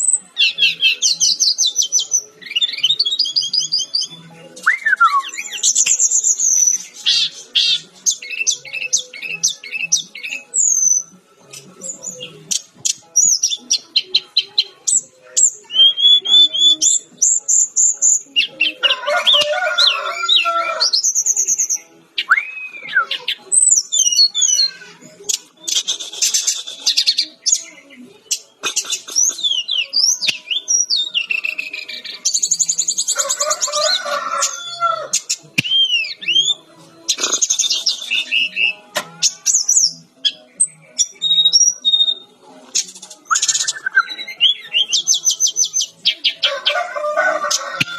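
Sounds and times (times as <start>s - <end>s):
bird singing whistled notes: 0.0s - 18.8s, 20.8s - 24.7s, 25.6s - 33.2s, 35.2s - 36.6s, 37.2s - 46.4s
bird whistling notes: 15.7s - 18.0s, 43.3s - 45.7s.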